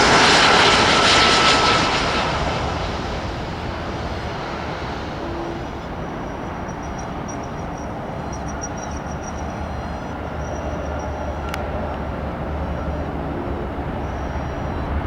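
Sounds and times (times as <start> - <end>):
jet aircraft engine: 0.0 - 15.0
low rumble of airport traffic: 0.0 - 15.0
faint high pulsing chirp: 2.9 - 15.0.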